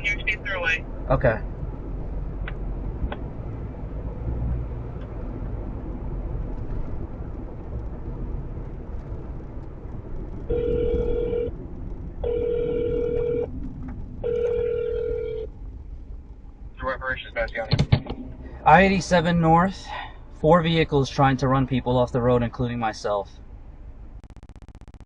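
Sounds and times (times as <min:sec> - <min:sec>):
car road rumble: 0:00.0 - 0:24.2
phone ringback tone: 0:10.5 - 0:11.5, 0:12.2 - 0:13.5, 0:14.2 - 0:15.5.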